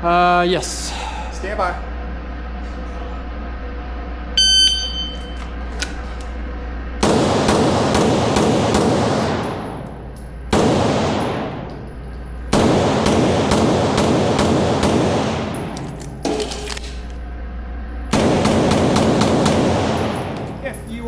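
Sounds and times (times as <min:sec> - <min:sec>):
rapid pistol shots with echo: 0:07.0 - 0:09.8, 0:10.5 - 0:11.7, 0:12.5 - 0:15.8, 0:18.1 - 0:20.6.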